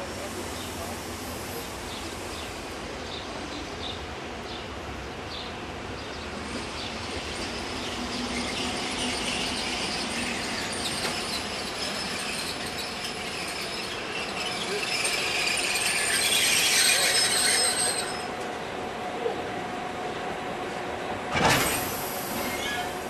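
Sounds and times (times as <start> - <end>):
railcar wheels squealing: 6.4 - 18.6, 21.3 - 23.0.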